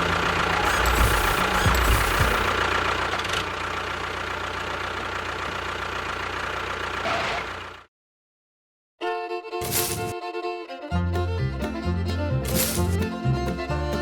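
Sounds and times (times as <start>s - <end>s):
small motor whining: 0.0s - 2.6s, 9.6s - 10.2s, 12.4s - 13.0s.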